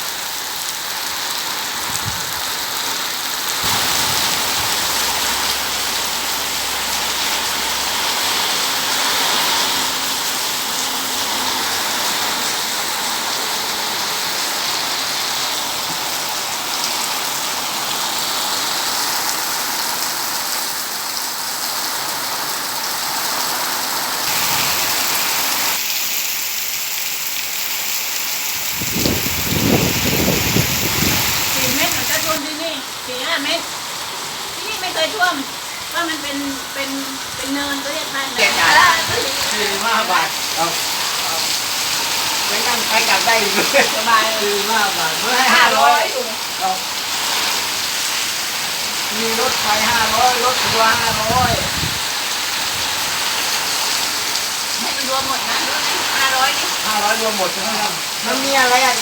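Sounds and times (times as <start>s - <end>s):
heavy rain pouring: 0.0s - 59.0s
strong wind: 1.8s - 2.6s, 3.6s - 9.8s, 28.6s - 32.4s, 49.5s - 53.4s.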